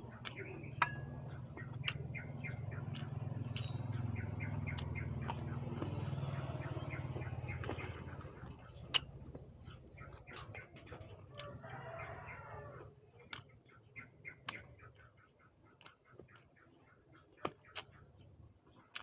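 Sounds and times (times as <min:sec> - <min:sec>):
low droning hum: 0:00.0 - 0:10.4
chewing crisp guava: 0:00.0 - 0:13.6, 0:14.3 - 0:19.0
small birds chirping: 0:00.0 - 0:19.0.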